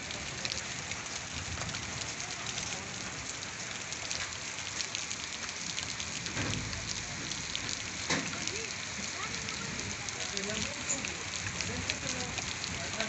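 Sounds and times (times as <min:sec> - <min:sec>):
heavy rain falling: 0:00.0 - 0:13.0
thump: 0:06.3 - 0:06.8.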